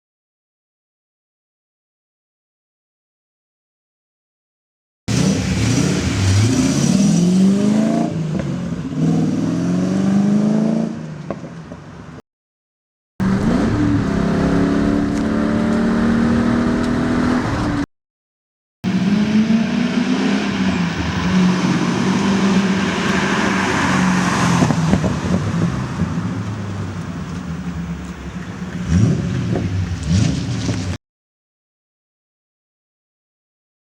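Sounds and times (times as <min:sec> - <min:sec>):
car engine revving: 0:05.1 - 0:11.3, 0:13.2 - 0:17.9, 0:18.8 - 0:31.0.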